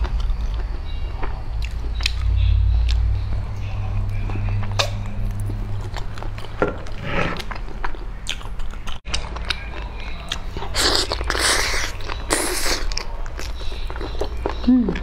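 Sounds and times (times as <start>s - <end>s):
wet biting and chewing: 4.6s - 15.0s.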